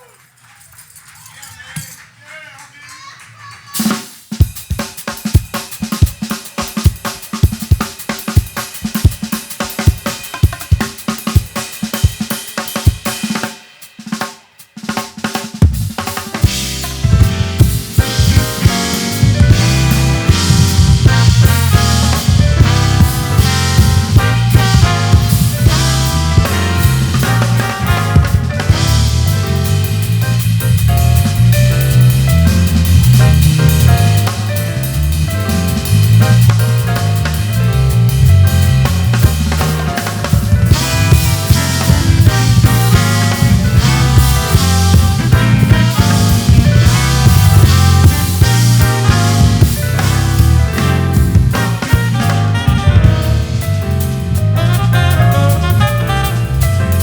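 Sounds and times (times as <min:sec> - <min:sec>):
drum kit groove: 0:03.6 - 0:57.0
heavy bass line: 0:15.8 - 0:57.0
keyboards playing: 0:16.2 - 0:57.0.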